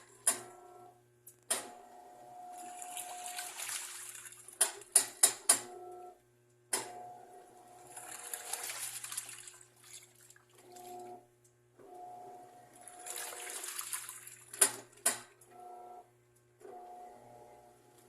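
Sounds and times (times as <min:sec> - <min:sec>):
washing machine motor humming: 0:00.0 - 0:18.0
water sloshing: 0:02.5 - 0:04.9, 0:07.8 - 0:11.0, 0:12.8 - 0:14.6.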